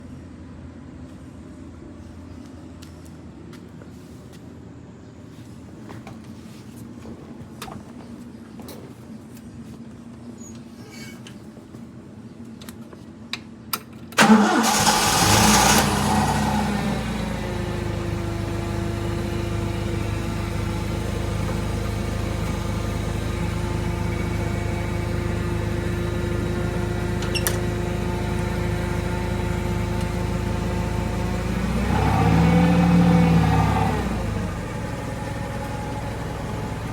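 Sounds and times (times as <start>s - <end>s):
forklift engine idling and revving: 14.2s - 36.9s.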